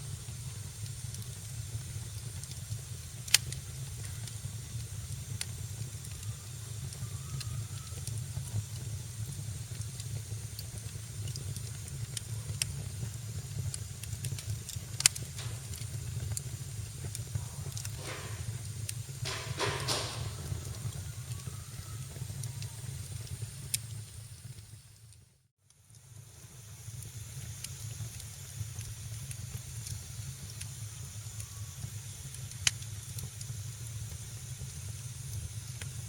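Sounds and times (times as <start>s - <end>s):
fire burning in fireplace: 0.0s - 36.0s
fire crackling: 0.0s - 36.0s
rush of hissing: 13.0s - 24.4s
sharp pops: 14.2s - 21.5s.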